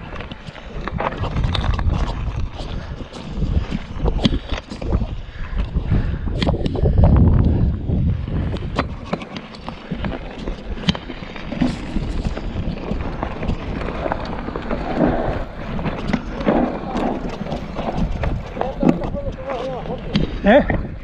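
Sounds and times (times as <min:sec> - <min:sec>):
wind rumbling on microphone: 0:00.0 - 0:21.0
clicks and rattles of movement: 0:08.4 - 0:20.4.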